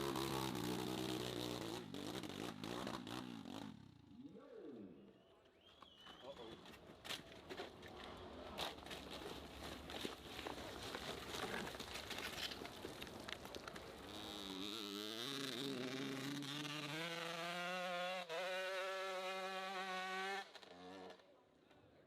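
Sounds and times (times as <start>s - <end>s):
motorcycle engine revving high: 0.0s - 4.2s, 14.1s - 21.2s.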